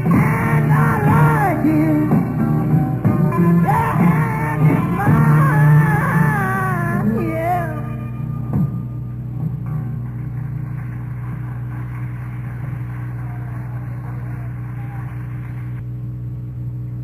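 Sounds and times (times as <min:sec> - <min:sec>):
amplifier electrical hum: 0:00.0 - 0:17.0
faint audience noise: 0:10.2 - 0:15.8.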